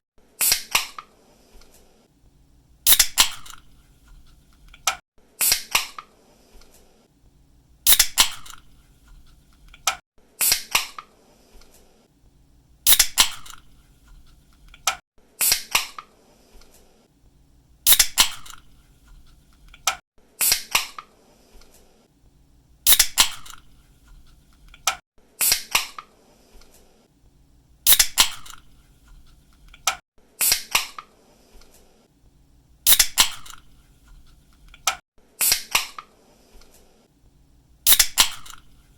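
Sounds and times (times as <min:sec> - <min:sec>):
drink can opening: 0:37.9 - 0:38.7.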